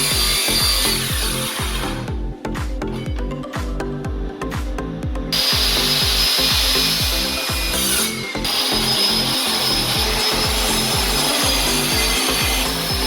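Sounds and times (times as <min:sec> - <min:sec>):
power tool cutting: 0:00.0 - 0:02.1, 0:05.3 - 0:13.0
music with thumping beat: 0:00.0 - 0:13.0.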